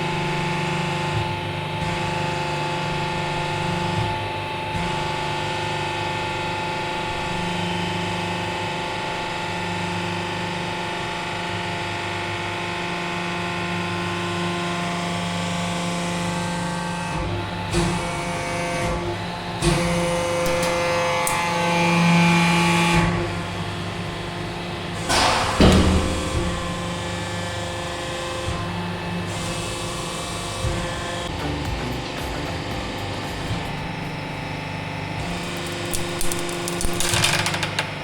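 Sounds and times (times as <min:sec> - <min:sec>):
hydraulic press droning hum: 0:16.5 - 0:38.0.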